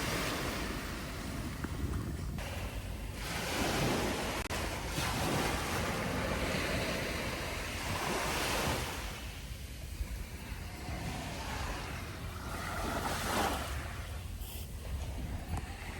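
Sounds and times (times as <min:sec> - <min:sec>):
surf washing onto beach: 0:00.0 - 0:15.9
wind rumbling on microphone: 0:00.0 - 0:15.9.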